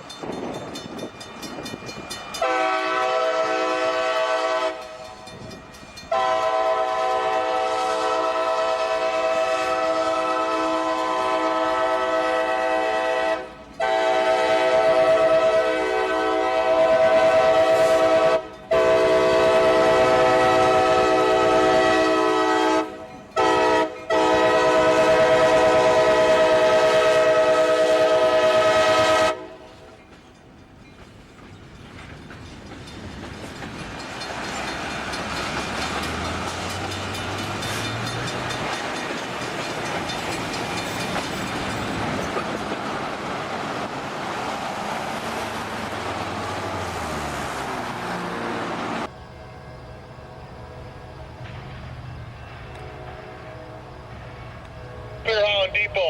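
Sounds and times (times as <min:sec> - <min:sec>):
train wheels rumbling on rails: 0:00.0 - 0:56.0
locomotive air horn chord: 0:02.4 - 0:05.2, 0:06.1 - 0:29.8.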